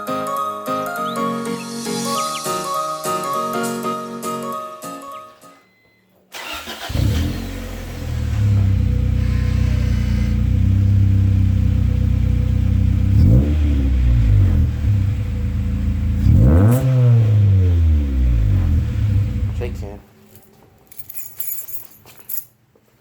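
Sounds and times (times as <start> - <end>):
car engine idling: 6.4 - 16.6, 17.3 - 19.9
engine revving: 6.4 - 19.8.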